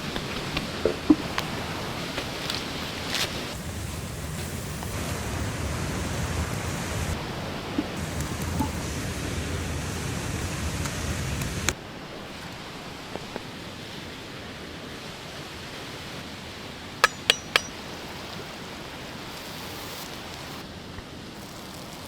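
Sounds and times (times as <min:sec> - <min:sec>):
steady hiss: 0:00.0 - 0:16.3, 0:17.0 - 0:22.0
ringing metallic clinks: 0:17.0 - 0:17.8.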